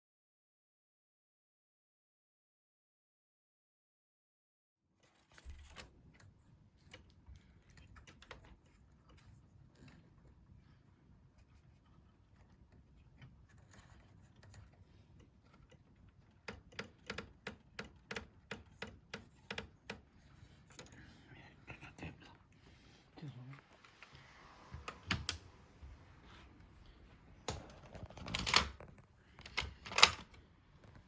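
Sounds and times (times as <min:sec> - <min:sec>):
small parts clicking and tapping: 0:05.2 - 0:10.4, 0:11.8 - 0:21.1, 0:27.5 - 0:31.0.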